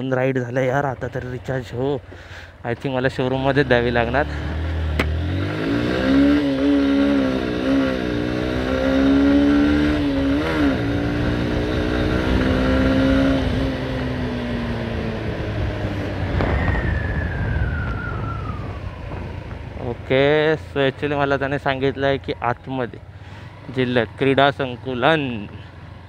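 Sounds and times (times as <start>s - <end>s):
motorcycle engine accelerating: 3.3s - 26.0s
high tone sliding downward: 14.6s - 20.0s.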